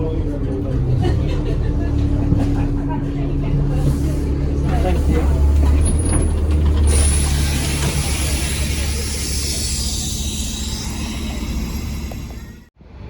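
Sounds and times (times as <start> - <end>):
bus diesel engine idling: 0.0 - 12.7.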